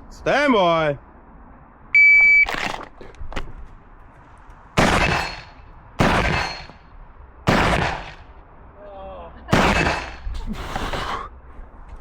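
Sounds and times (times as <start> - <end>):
shot timer start beep: 2.0 - 2.5
shotgun shots: 4.8 - 6.8, 7.5 - 8.2, 9.5 - 10.2.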